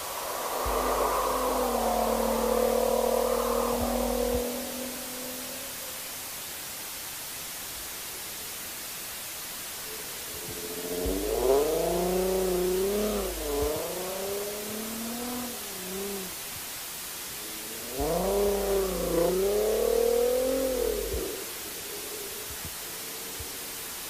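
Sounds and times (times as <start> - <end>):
car engine revving: 0.0 - 6.4, 10.1 - 16.5, 17.2 - 23.5
steady hiss: 0.0 - 24.0.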